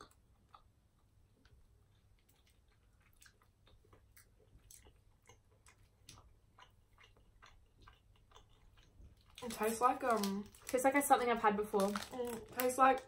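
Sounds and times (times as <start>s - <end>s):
faint chewing mouth clicks: 0.0s - 9.4s.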